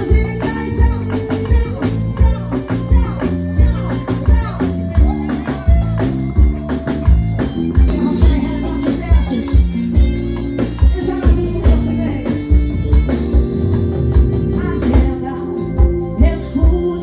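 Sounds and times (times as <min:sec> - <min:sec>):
kick drum beat: 0:00.0 - 0:10.1
keyboard chords: 0:00.0 - 0:17.0
person singing: 0:00.0 - 0:17.0.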